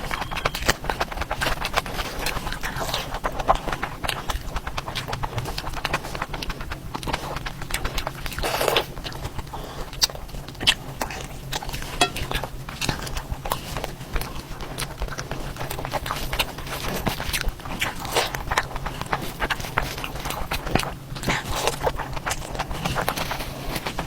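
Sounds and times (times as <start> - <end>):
person chewing and lip-smacking: 0.0 - 13.2.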